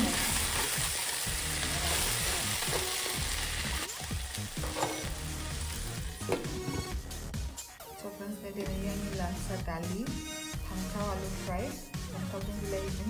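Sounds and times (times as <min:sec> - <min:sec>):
vegetables sizzling in hot oil: 0:00.0 - 0:06.3.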